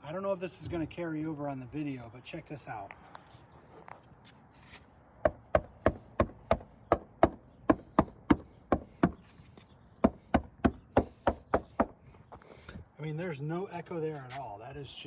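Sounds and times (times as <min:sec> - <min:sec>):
knocking on car hatch: 0:05.3 - 0:09.2, 0:10.0 - 0:12.0.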